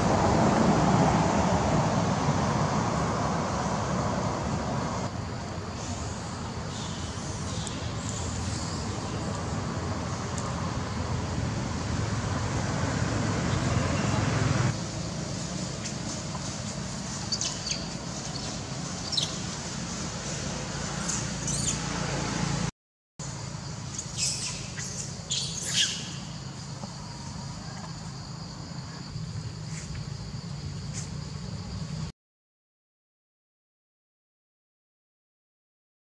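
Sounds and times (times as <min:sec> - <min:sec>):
outdoor background hum: 0:00.0 - 0:32.1
birds chirping: 0:05.8 - 0:11.3, 0:16.6 - 0:19.5, 0:21.0 - 0:21.9, 0:23.6 - 0:28.0.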